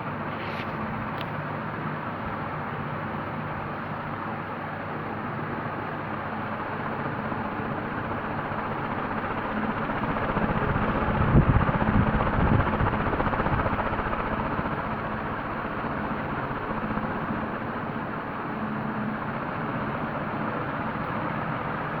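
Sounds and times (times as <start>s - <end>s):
ceiling fan running: 0.0s - 22.0s.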